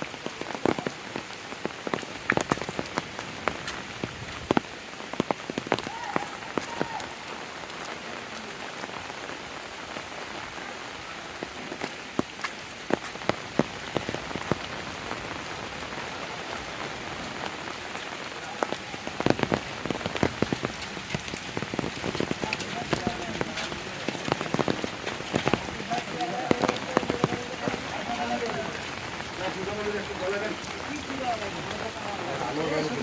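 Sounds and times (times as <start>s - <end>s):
raindrops striking close: 0.0s - 33.0s
steady rain: 0.0s - 33.0s.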